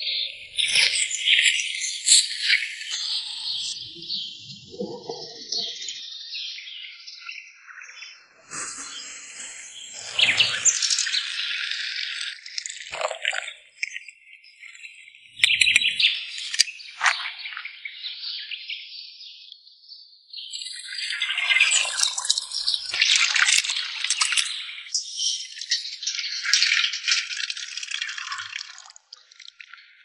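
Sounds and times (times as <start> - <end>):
birds chirping: 0.0 - 18.7.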